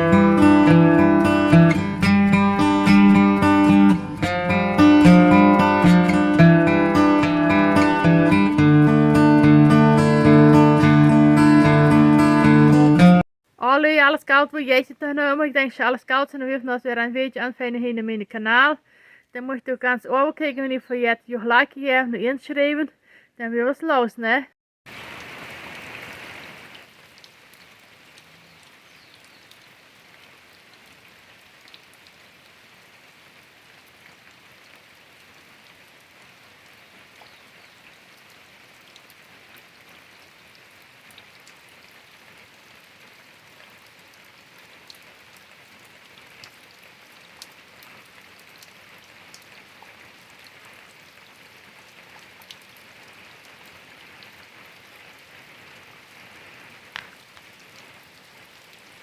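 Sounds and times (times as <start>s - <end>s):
raindrops ticking on surfaces: 24.9s - 59.0s
steady rain hiss: 24.9s - 59.0s.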